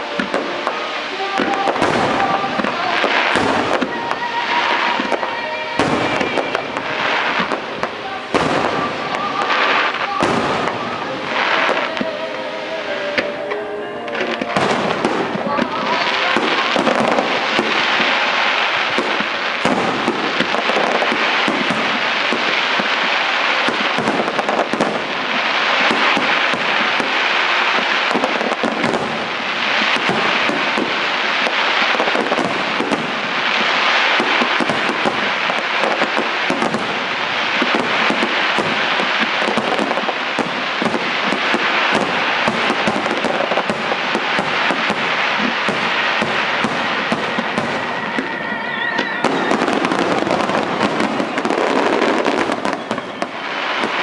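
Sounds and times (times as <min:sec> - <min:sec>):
fireworks bursting and crackling: 0:00.0 - 0:54.0.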